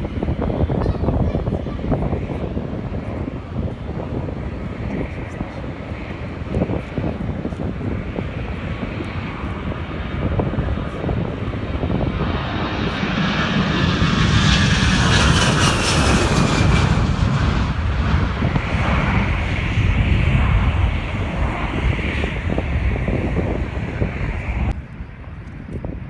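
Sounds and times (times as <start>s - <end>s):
jet aircraft passing: 0.0s - 24.8s.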